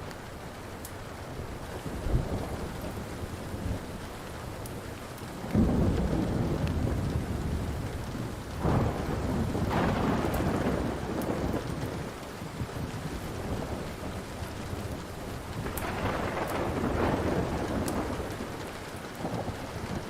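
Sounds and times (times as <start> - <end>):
steady rain: 0.0 - 20.0
wood fire crackling: 0.0 - 20.0
thunder rolling: 5.5 - 20.0.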